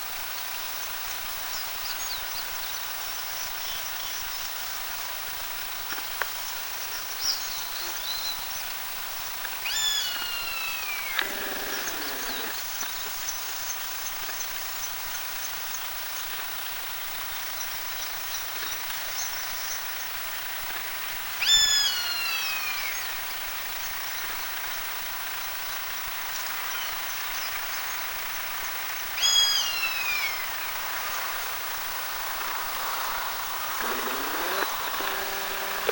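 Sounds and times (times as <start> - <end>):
buzzard mewing calls: 9.8 - 12.6.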